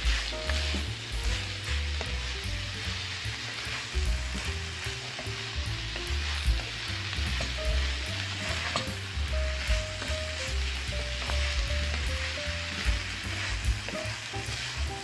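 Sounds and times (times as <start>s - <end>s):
carrots sizzling in a pan: 0.0s - 15.0s
utensil clicking against pan: 8.5s - 9.0s.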